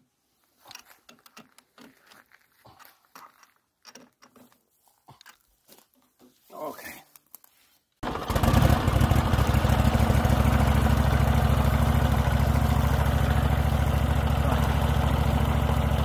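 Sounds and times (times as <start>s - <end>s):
engine running steadily: 8.0s - 16.0s.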